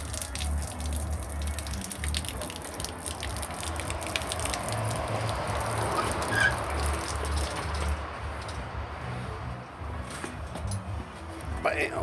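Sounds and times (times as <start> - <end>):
radio music with bass beat: 11.3 - 12.0.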